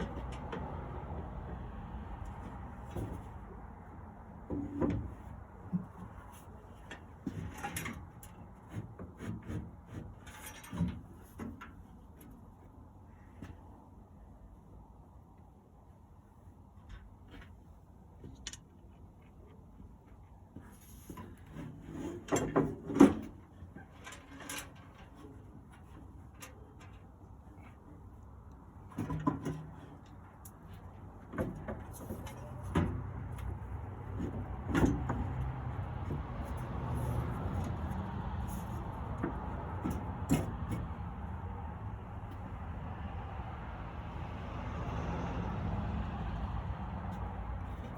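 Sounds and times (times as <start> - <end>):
metal parts knocking and scraping: 6.8 - 11.8.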